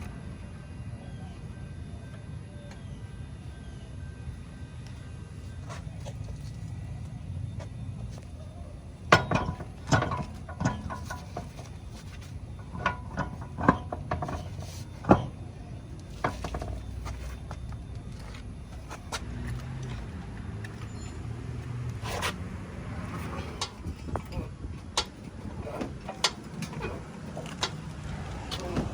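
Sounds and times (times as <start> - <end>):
low steady hum: 0.0 - 28.9
metal clanks and knocks: 9.1 - 22.4, 23.1 - 28.9.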